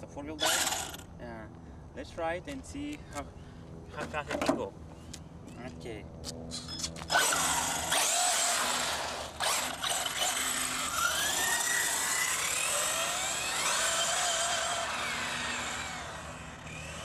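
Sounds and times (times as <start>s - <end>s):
electric motor whining: 0.4s - 1.1s, 6.6s - 17.0s.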